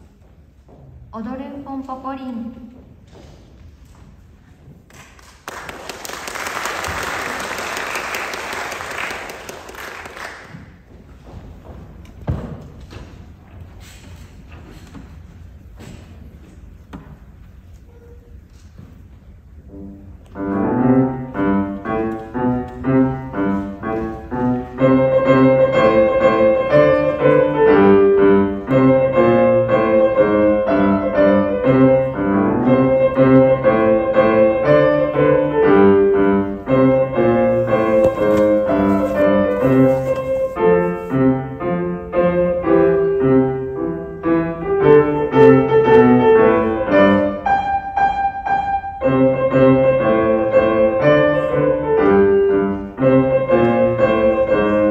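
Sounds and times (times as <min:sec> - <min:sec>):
piano tune over bass line: 0:19.6 - 0:54.9.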